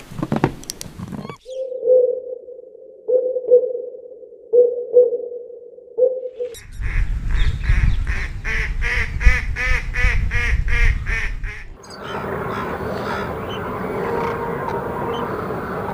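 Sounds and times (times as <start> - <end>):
fowl calling: 7.7 - 15.9
steady noisy background: 11.8 - 15.9.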